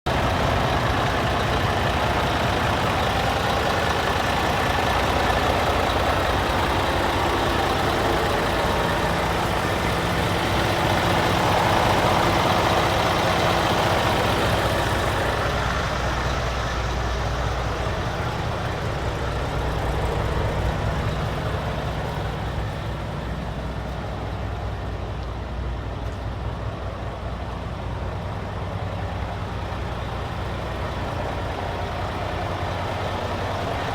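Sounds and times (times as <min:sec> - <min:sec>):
truck diesel engine running: 0:00.1 - 0:33.9.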